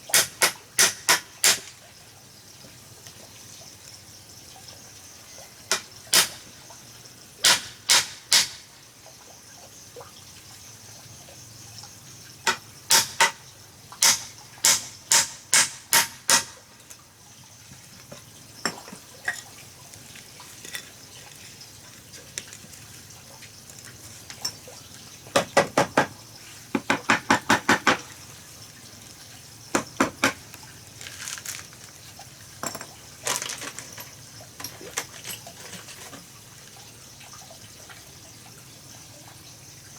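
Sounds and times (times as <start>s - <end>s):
sharp taps and knocks: 0.1s - 1.8s, 25.4s - 26.1s, 26.7s - 28.1s, 29.7s - 30.5s.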